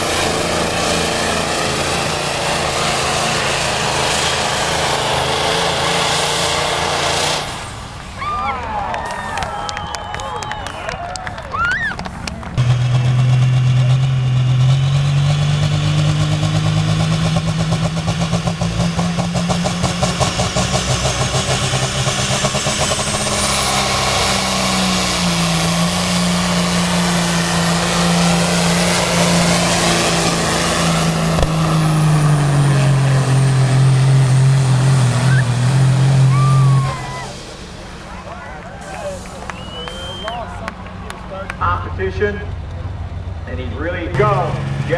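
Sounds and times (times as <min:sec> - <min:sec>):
truck engine under load: 0:00.0 - 0:44.9
faint high whistle: 0:39.4 - 0:40.6.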